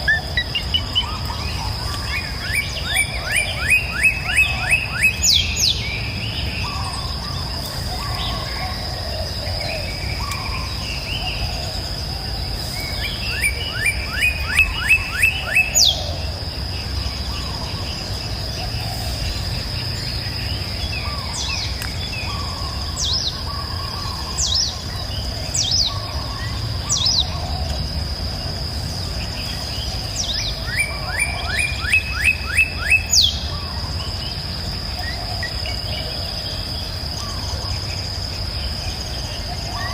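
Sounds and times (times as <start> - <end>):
birds calling descending notes: 0.0 - 39.9
high insect trill: 0.0 - 39.9.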